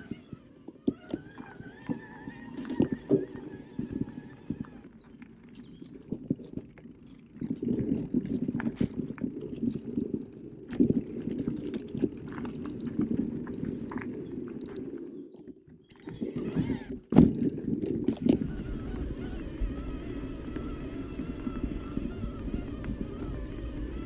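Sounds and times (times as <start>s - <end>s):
bike tyres rumbling on dirt: 0.9s - 15.0s, 17.1s - 24.0s
bike knocking and rattling: 17.2s - 24.0s.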